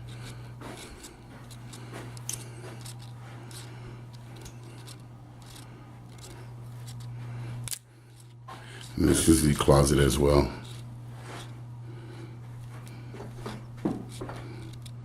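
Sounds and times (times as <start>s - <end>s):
camera handling rustles and clicks: 0.0s - 9.0s, 12.6s - 15.0s
steady low hum: 0.0s - 15.0s.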